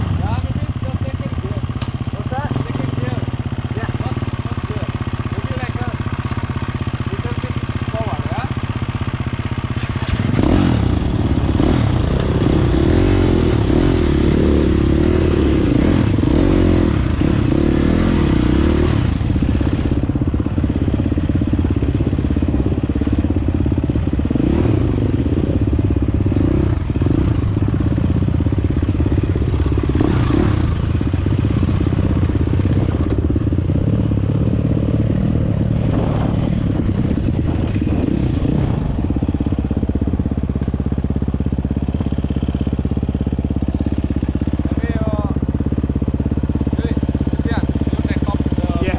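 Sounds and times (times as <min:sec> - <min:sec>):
dirt bike engine revving: 0:00.0 - 0:40.3, 0:44.7 - 0:48.9.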